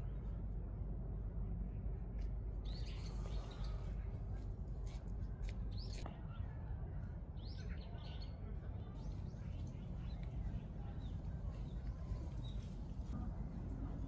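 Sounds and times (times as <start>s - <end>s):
low outdoor rumble: 8.2s - 14.0s.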